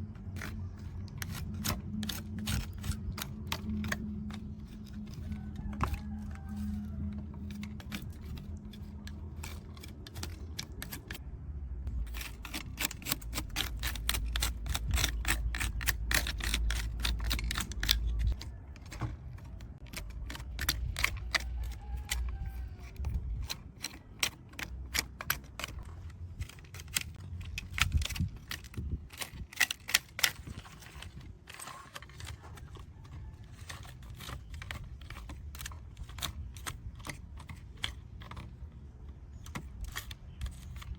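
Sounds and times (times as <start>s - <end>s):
small clicks of model truck parts: 12.1s - 40.9s.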